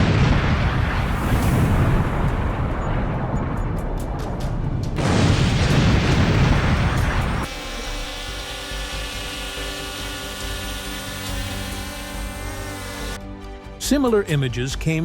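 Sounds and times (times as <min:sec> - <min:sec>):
deep rumbling explosion: 0:00.0 - 0:07.5
background music: 0:07.0 - 0:15.0.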